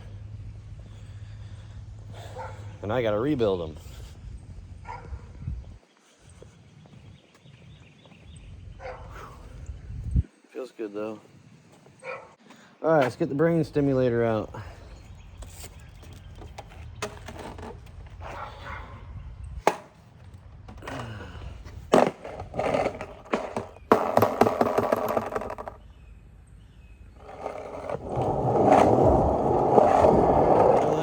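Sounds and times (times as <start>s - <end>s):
skateboard wheels rolling on concrete: 11.0s - 19.0s, 19.6s - 31.0s
skateboard clacks: 21.9s - 25.8s, 27.2s - 31.0s.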